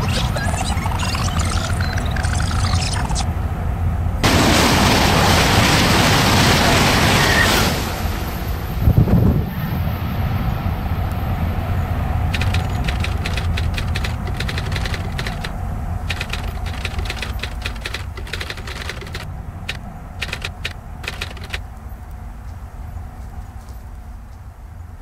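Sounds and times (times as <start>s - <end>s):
train rumble: 2.9s - 25.0s
sharp clicks: 12.3s - 22.2s.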